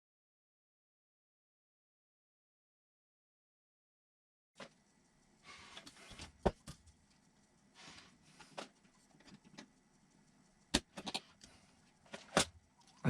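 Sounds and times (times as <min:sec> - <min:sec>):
small sharp clicks of parts: 0:04.6 - 0:13.0.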